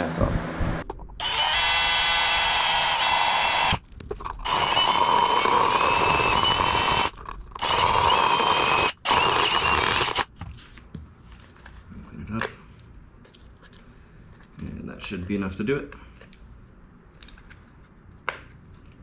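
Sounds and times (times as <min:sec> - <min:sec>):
power drill whining: 0:01.2 - 0:03.8, 0:04.4 - 0:10.3.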